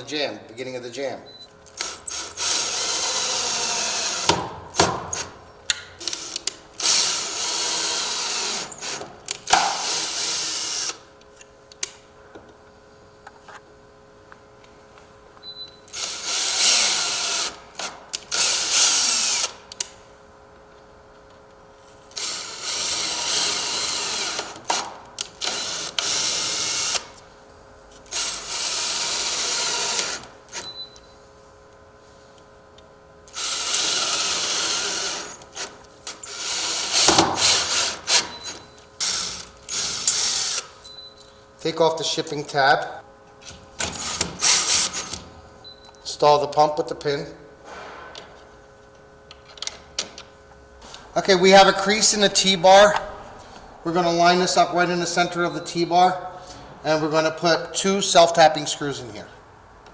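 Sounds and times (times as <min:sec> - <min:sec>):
drill clicks: 0:01.6 - 0:12.0, 0:15.9 - 0:20.0, 0:22.1 - 0:27.2, 0:28.0 - 0:31.1, 0:33.3 - 0:41.0, 0:43.8 - 0:46.6
cordless drill driving screws: 0:01.7 - 0:11.1, 0:15.9 - 0:19.9, 0:22.1 - 0:27.2, 0:28.0 - 0:30.7, 0:33.3 - 0:40.9, 0:43.8 - 0:45.3.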